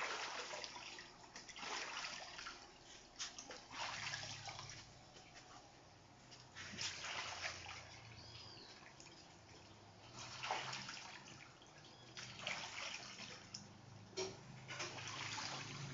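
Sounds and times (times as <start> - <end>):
splashing in shallow water: 0.0 - 5.0, 6.5 - 13.7.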